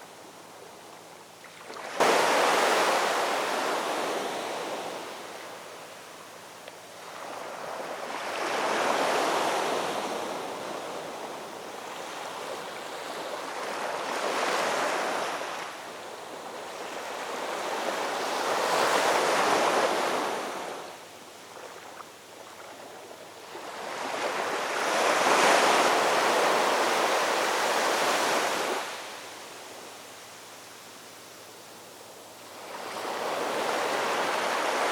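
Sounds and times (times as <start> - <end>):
ocean waves breaking: 1.7 - 5.3.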